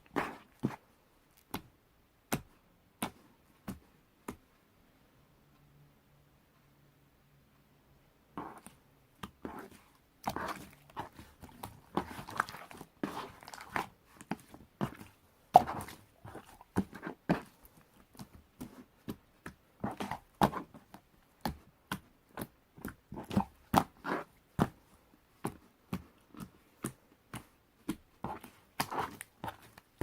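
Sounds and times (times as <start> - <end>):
slime squished by hand: 8.4 - 19.2.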